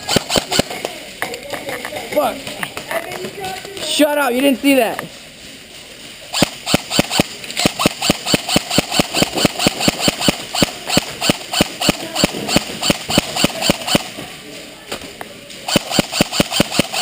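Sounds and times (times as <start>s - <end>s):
rapid regular clicking: 6.3s - 14.1s.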